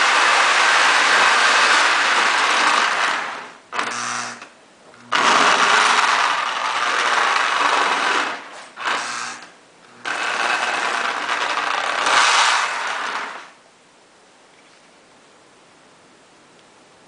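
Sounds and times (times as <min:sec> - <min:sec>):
toy train motor whirring: 0:03.8 - 0:04.5, 0:05.1 - 0:13.5.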